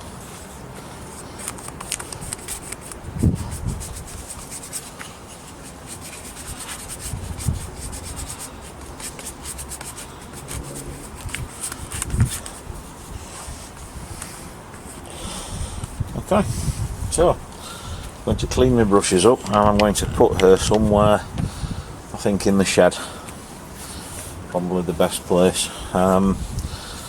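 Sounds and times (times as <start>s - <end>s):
brush rubbing on wood: 0.0s - 19.4s.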